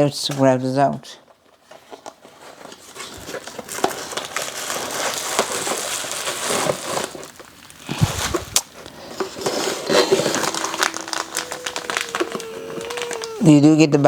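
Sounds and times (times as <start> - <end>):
packaging crinkling and rustling: 1.7 - 8.6.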